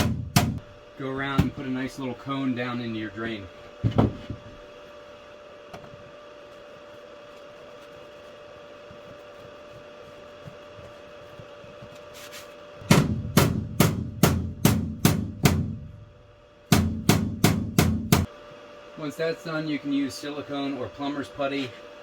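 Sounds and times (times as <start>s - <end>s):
low steady hum: 0.0s - 22.0s
hammer striking metal: 12.8s - 15.8s, 16.7s - 18.3s.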